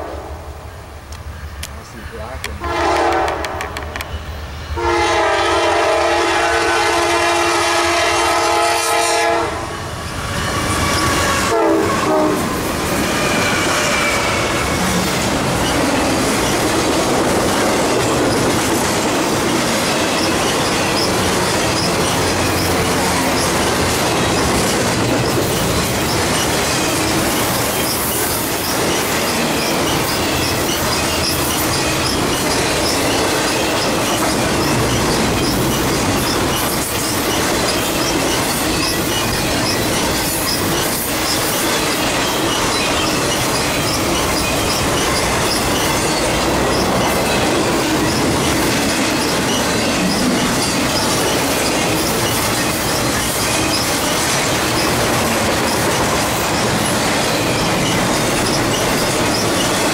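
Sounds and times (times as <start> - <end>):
train wheels rumbling over rails: 0.0 - 59.9
locomotive air horn: 2.6 - 3.7, 4.8 - 9.7, 10.4 - 12.5
high wheel squeals: 9.9 - 16.6, 19.9 - 59.9.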